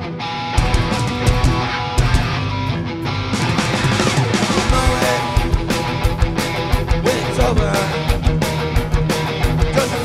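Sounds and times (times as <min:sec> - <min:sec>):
drums: 0:00.0 - 0:10.0
electric guitar: 0:00.0 - 0:10.0
person singing: 0:04.7 - 0:05.6, 0:07.0 - 0:08.1, 0:09.6 - 0:10.0.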